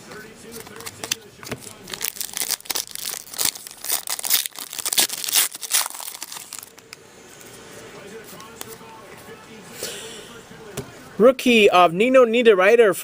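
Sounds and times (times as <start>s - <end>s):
wrapper crinkling and tearing: 1.8s - 6.9s.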